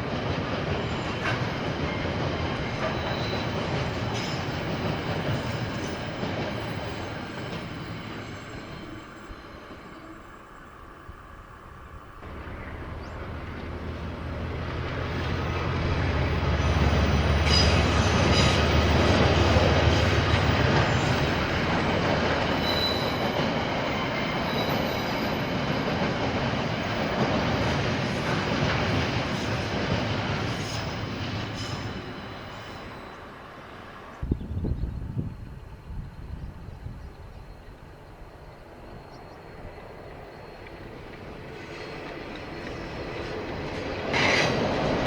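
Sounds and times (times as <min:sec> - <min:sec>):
locomotive engine rumble: 0:00.0 - 0:45.0
rumble of train wagons: 0:00.0 - 0:45.0
high wheel squeals: 0:02.6 - 0:10.7, 0:15.1 - 0:26.0, 0:30.4 - 0:34.1.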